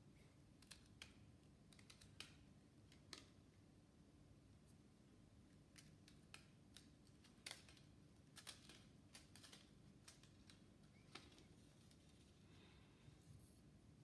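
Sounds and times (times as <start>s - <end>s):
faint light clicks and ticks: 0.2s - 3.4s, 5.4s - 12.4s.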